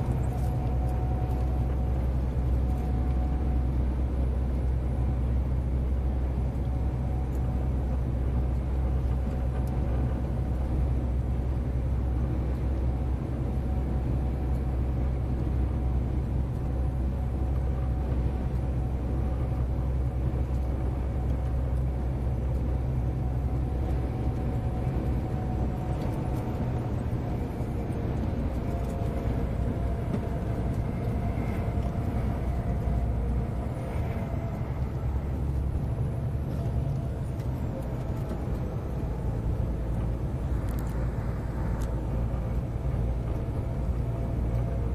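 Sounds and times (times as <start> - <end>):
diesel engine droning: 0.0 - 44.9.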